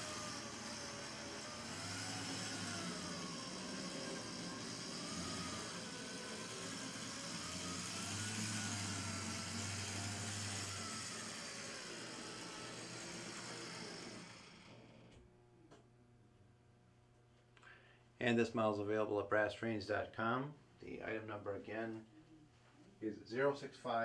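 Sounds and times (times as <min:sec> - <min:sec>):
model train motor whine: 0:00.0 - 0:15.2.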